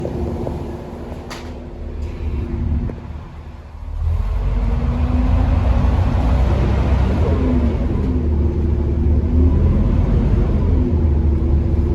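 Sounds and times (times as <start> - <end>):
bus engine under load: 0.0 - 11.9.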